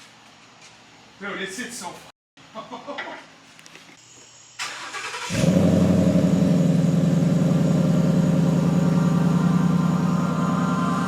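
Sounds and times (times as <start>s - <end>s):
car engine running: 5.3s - 11.0s.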